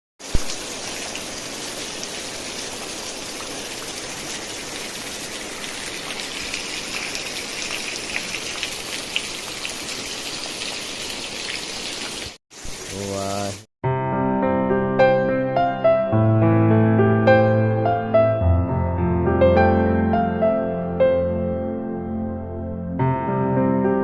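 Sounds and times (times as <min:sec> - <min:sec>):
heavy rain falling: 0:00.2 - 0:13.6.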